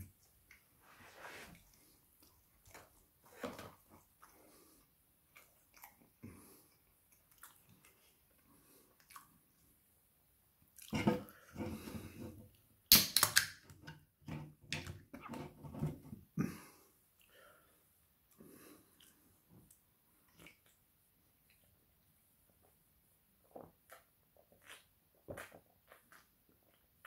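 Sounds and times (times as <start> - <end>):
wet chewing sounds: 3.8 - 9.7, 18.9 - 21.8, 23.4 - 27.0.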